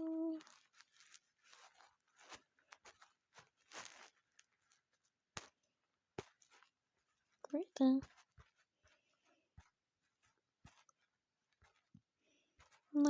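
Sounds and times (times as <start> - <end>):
pen scratching strokes: 0.5 - 4.9, 8.0 - 12.0, 12.6 - 13.0.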